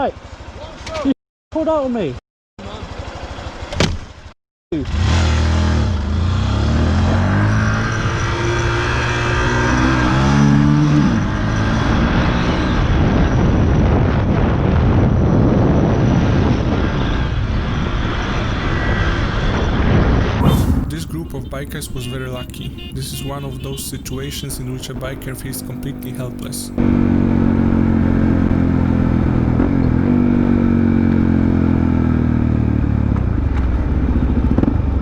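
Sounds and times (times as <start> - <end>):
motorcycle engine revving: 4.8 - 13.4, 26.6 - 34.9
wind and road noise: 4.9 - 35.0.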